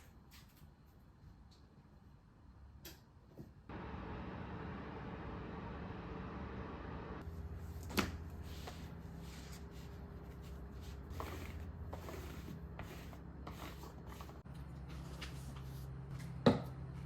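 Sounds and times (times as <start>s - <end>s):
steady low hum: 3.7s - 17.0s
soft rubbing and handling noises: 7.7s - 16.4s.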